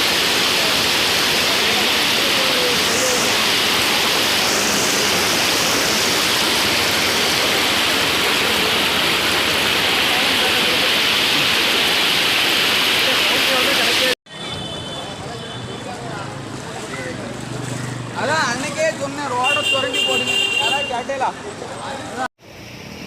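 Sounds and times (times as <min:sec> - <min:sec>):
floodwater rushing: 0:00.0 - 0:14.2.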